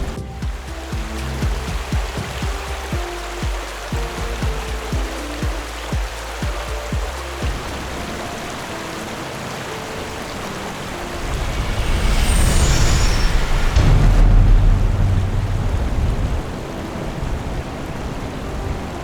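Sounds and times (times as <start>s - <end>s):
falling hiss: 0.0s - 16.8s
steady rushing background: 0.0s - 18.4s
vehicle engine rumble passing: 11.1s - 16.7s.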